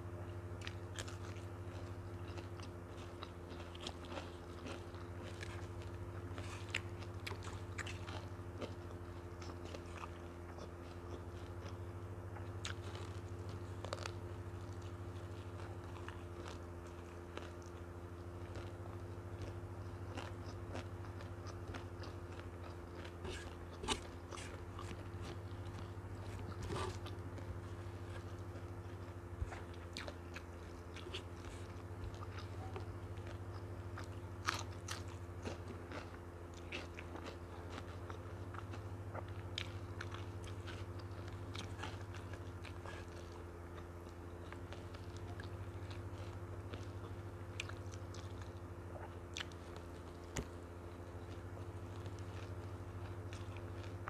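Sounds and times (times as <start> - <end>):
chewing food: 0.0 - 54.0
low hum: 0.0 - 54.0
sharp crunches and clicks: 12.4 - 48.6.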